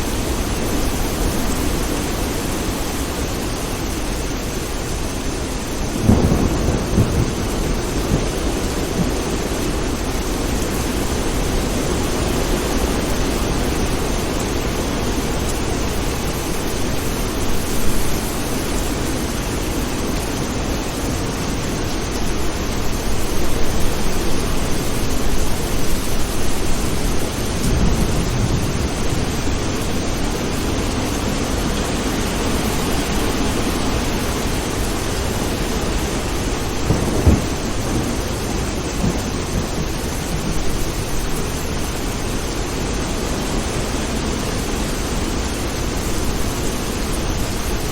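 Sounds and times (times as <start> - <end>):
heavy rain hiss: 0.0 - 47.9
thunder rumbling: 5.8 - 18.3, 22.0 - 32.0, 32.8 - 42.0.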